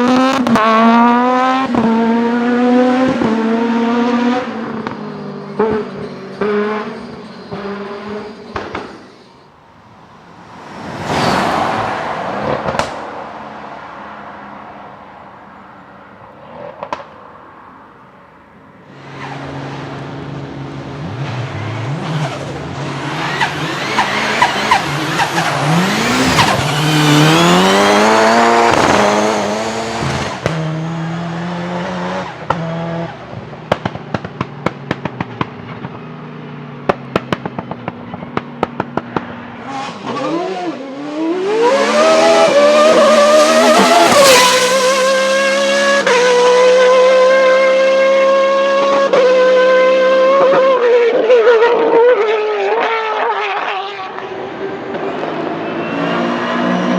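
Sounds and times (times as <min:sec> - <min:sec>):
car engine revving and idling: 0:00.0 - 0:56.9
car passing loudly: 0:00.0 - 0:56.9
exhaust pops and crackles: 0:04.6 - 0:10.7, 0:12.4 - 0:13.1, 0:16.4 - 0:17.2, 0:32.4 - 0:40.4.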